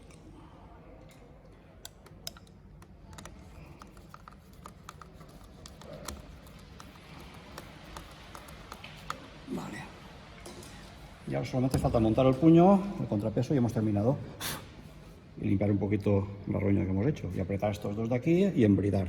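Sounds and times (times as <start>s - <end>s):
clicks of small parts and tools: 1.0s - 9.2s.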